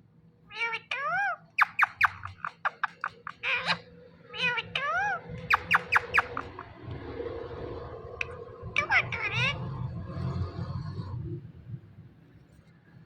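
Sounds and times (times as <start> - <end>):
parakeet rising-and-falling call: 0.5 - 9.7
parakeet sharp chirps: 0.6 - 6.8.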